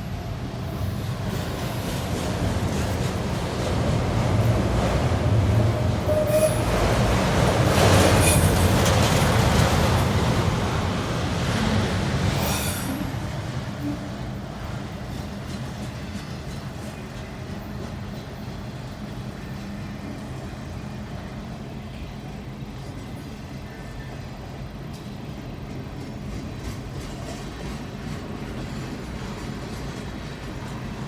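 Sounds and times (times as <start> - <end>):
freight train rolling past: 0.0 - 31.0.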